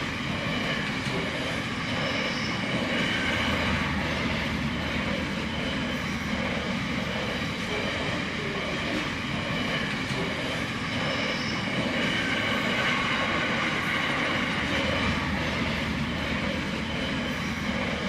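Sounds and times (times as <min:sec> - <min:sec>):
freight train wheels rumbling on rail: 0:00.0 - 0:18.0.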